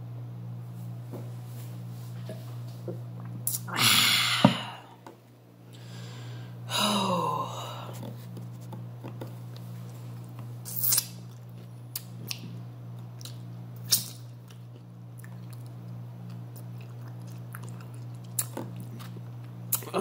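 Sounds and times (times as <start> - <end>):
person chewing with mouth smacks: 7.9 - 20.0.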